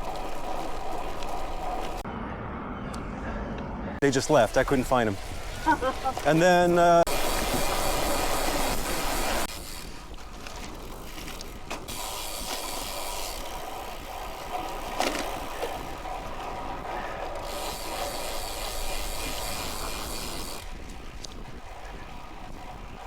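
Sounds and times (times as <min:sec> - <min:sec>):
bicycle freewheel ticking: 0:00.0 - 0:02.0, 0:04.2 - 0:23.0
wind hiss: 0:10.8 - 0:23.0.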